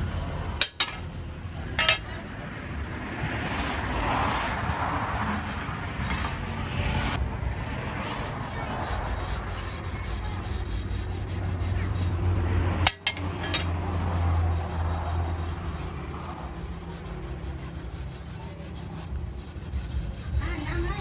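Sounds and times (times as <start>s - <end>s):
rubbing strokes against metal: 7.4s - 12.1s, 12.9s - 21.0s.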